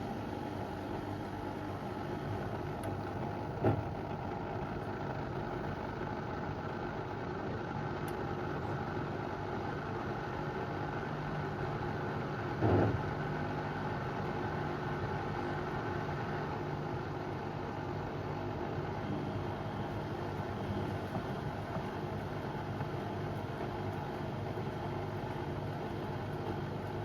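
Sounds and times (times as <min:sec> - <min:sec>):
washing machine motor hum: 0:00.0 - 0:27.0.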